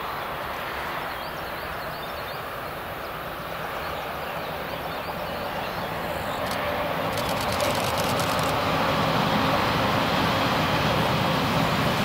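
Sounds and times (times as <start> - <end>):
train rumbling: 4.4 - 12.0.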